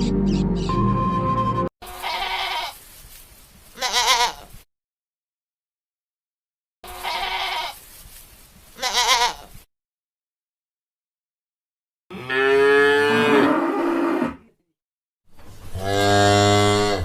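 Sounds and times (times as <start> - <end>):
sheep bleating: 1.8 - 2.8, 3.8 - 4.4, 6.9 - 7.8, 8.8 - 9.5.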